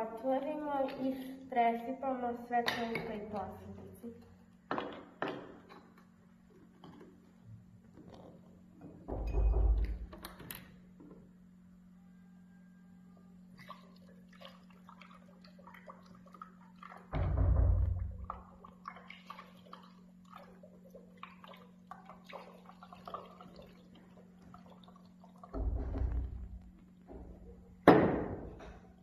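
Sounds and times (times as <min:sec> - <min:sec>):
liquid dripping and plopping: 0:13.5 - 0:26.9.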